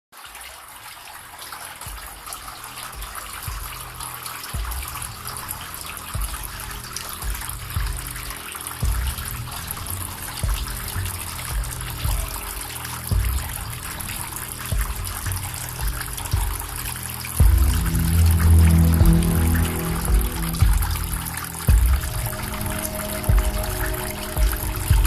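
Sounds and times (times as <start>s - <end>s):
water fountain splashing: 0.2s - 25.0s
low rumbles: 3.6s - 25.0s.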